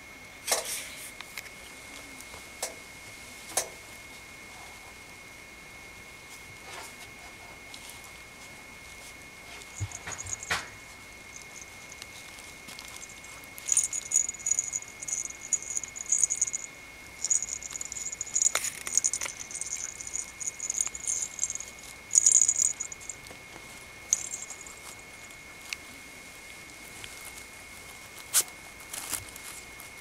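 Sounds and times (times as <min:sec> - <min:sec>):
faint steady high tone: 0:07.4 - 0:30.0
puppy paws pattering: 0:07.7 - 0:30.0.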